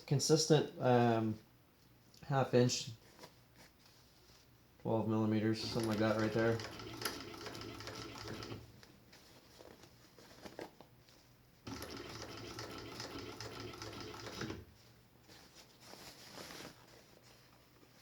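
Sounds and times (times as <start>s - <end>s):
industrial sewing machine stitching: 5.6s - 8.6s, 11.7s - 14.7s.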